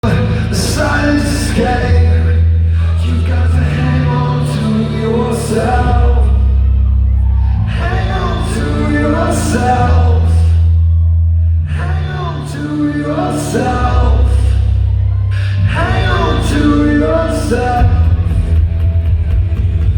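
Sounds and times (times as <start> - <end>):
man singing lead vocal: 0.0 - 10.8, 11.6 - 18.8
live rock band playing: 16.6 - 19.9.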